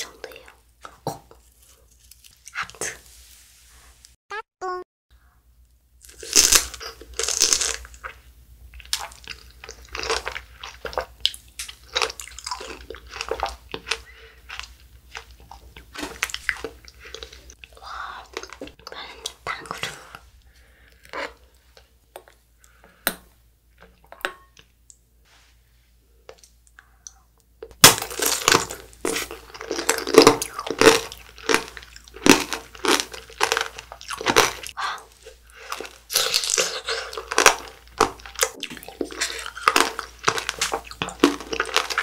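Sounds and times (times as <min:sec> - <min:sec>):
crunchy bites and wet chewing: 0:27.6 - 0:42.0.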